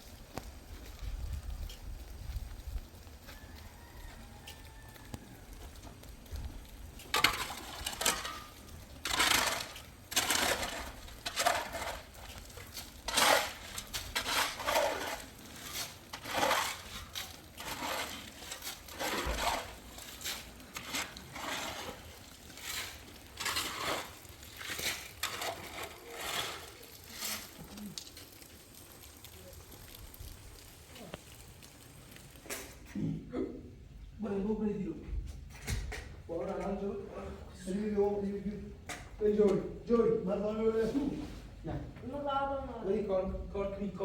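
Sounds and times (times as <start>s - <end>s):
rough scraping strokes: 6.0s - 29.3s.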